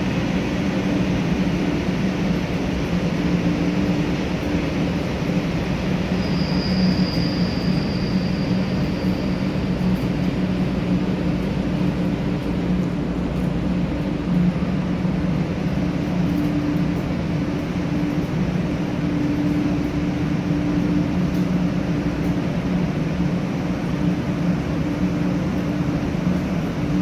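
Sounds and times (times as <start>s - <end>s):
train equipment humming: 0.0s - 27.0s.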